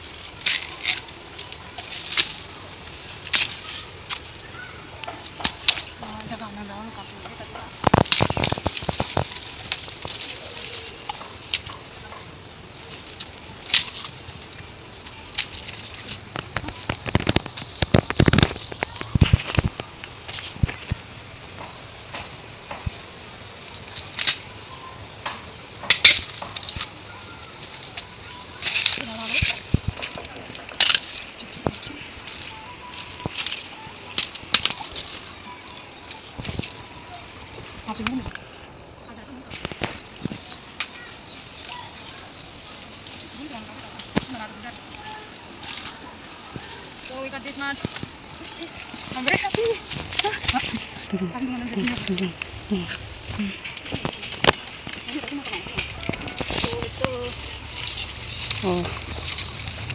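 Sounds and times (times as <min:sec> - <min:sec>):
bamboo shoots snapping: 0:00.0 - 0:06.4, 0:07.5 - 0:12.2, 0:12.8 - 0:20.7, 0:28.6 - 0:32.0, 0:47.8 - 0:59.9
rustling of dry leaves: 0:00.0 - 0:59.9.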